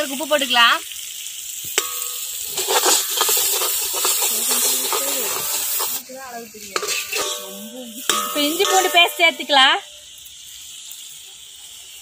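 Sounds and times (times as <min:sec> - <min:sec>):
onions sizzling in hot oil: 0:00.0 - 0:12.0
metal ladle scraping a pan: 0:01.7 - 0:10.1.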